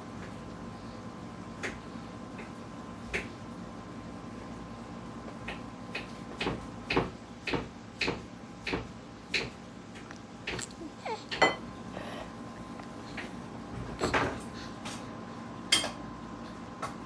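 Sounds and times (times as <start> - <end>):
utensil clinking against a dish: 11.3 - 11.7.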